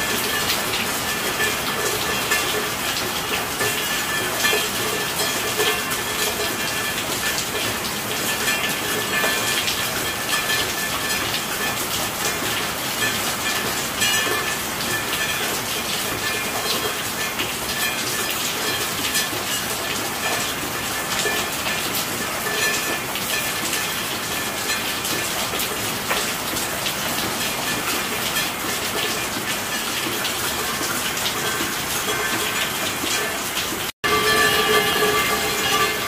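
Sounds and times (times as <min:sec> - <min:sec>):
steady rain falling: 0:00.0 - 0:36.0
faint steady high tones: 0:34.0 - 0:36.0.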